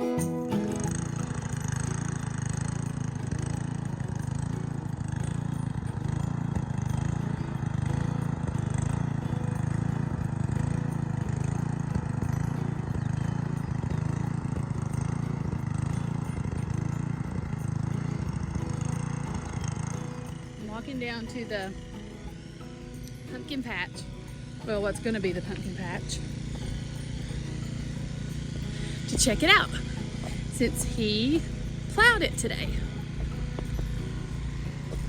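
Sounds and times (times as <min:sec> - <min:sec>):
engine running steadily: 0:00.0 - 0:35.0.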